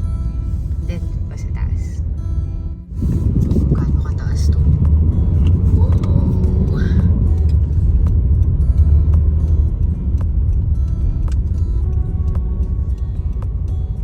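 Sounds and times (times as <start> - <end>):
car engine and road rumble: 0.0 - 14.0
light ticks: 4.7 - 14.0.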